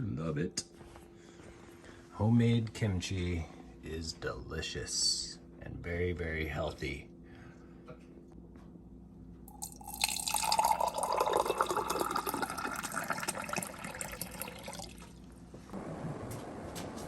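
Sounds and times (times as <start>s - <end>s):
water running from a tap: 9.6s - 15.1s
low rushing noise: 15.7s - 17.0s.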